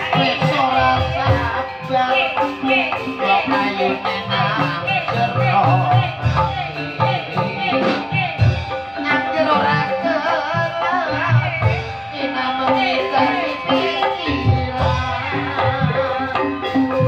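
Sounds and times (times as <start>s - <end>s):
band playing melodic instruments: 0.0s - 17.0s
person singing: 0.0s - 17.0s.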